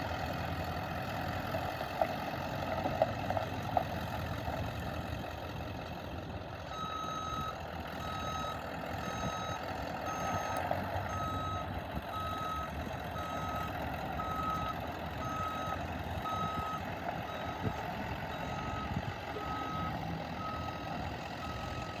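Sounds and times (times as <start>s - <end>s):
truck engine running: 0.0s - 22.0s
backup alarm beeping: 6.7s - 20.8s.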